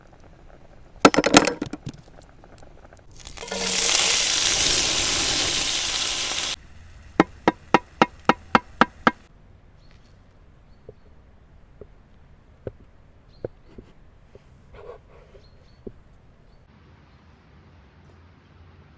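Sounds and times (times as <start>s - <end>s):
food sizzling in pan: 0.0s - 16.6s
chopping strokes: 7.2s - 9.3s.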